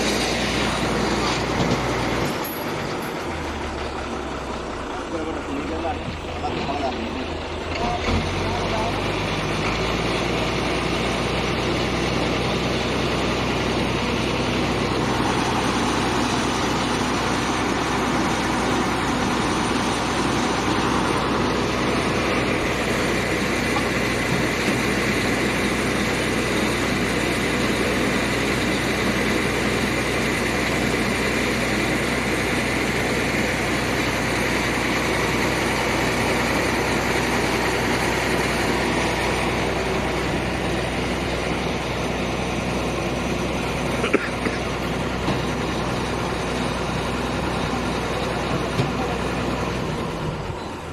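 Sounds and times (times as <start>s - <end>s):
heavy diesel engine running: 0.0s - 50.9s.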